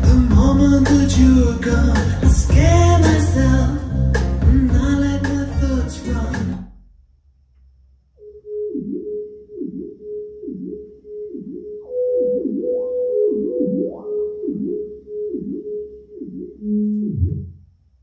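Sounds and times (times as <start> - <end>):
electronic music on loudspeakers: 0.0 - 6.7.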